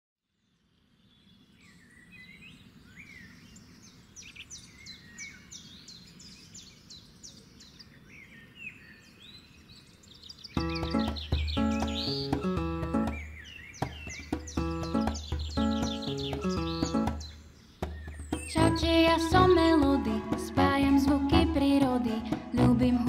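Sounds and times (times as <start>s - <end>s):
songbirds chirping and trilling: 0.3s - 22.6s
music: 10.6s - 23.0s.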